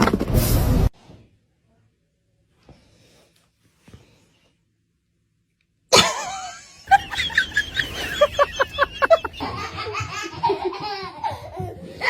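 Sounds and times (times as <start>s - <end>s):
voices: 6.9s - 9.4s
people laughing: 6.9s - 11.1s.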